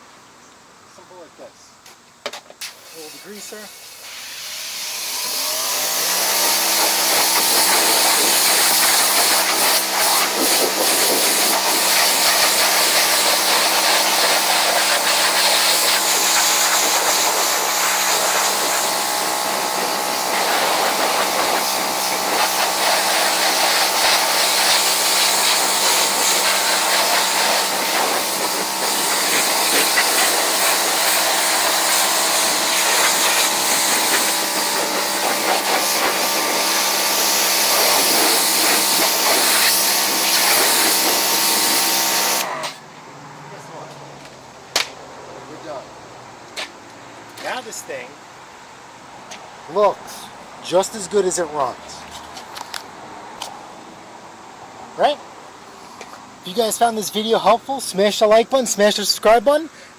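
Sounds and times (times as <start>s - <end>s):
pressure washer spraying: 2.6s - 42.8s.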